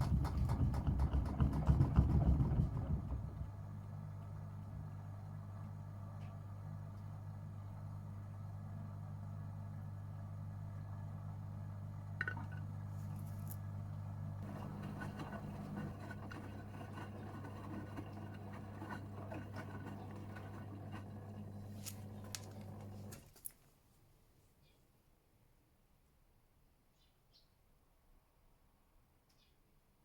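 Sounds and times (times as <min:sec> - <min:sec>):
washing machine humming: 0:00.0 - 0:23.3
rough busy machine noise: 0:14.4 - 0:23.2.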